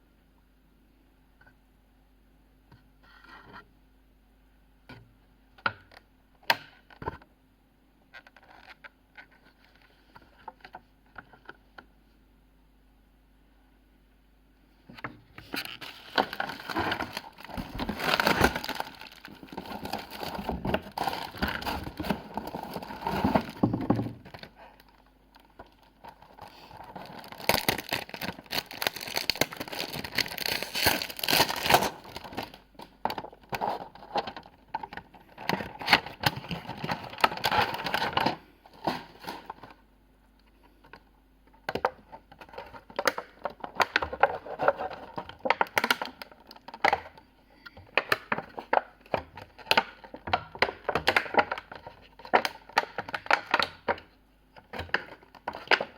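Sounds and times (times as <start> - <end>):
packaging crinkling: 15.4 - 39.8, 47.9 - 55.9.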